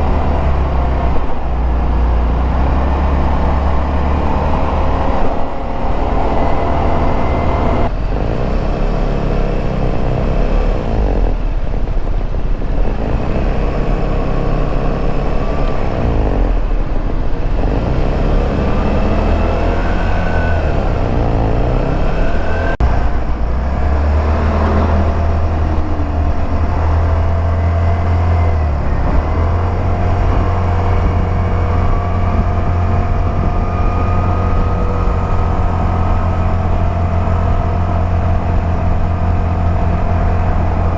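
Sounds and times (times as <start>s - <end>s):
road and wind noise: 0.0s - 40.9s
scooter engine droning: 0.0s - 40.9s.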